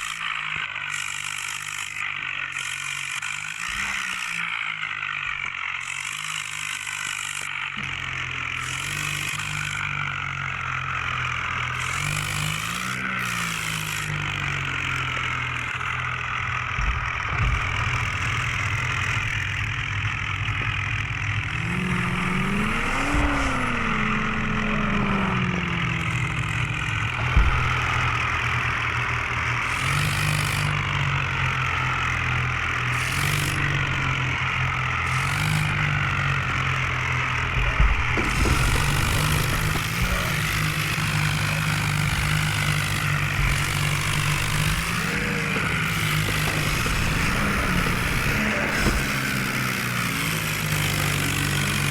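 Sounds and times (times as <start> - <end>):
tractor engine running: 0.0 - 51.9
sharp knocks: 16.6 - 30.8, 35.1 - 51.4.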